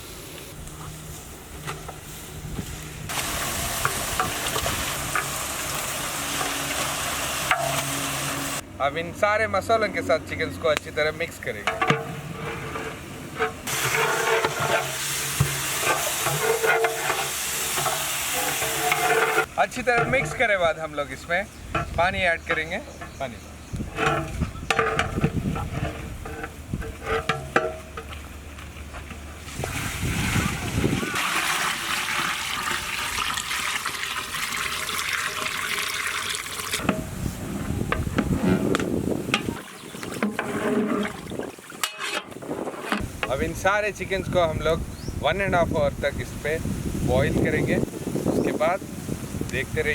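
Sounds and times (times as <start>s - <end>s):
meat sizzling in hot oil: 3.1s - 8.6s, 13.7s - 19.5s, 29.6s - 36.8s
water pouring into a pot: 3.1s - 8.6s, 29.5s - 36.8s
clinks and knocks: 11.6s - 20.5s, 23.9s - 28.1s
spoon stirring and scraping pot: 11.7s - 20.5s, 23.8s - 28.1s, 37.9s - 41.2s.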